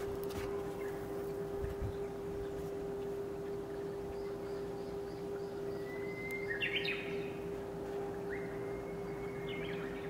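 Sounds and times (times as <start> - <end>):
steady hum: 0.0 - 10.0
bird whistling and warbling: 5.7 - 7.3.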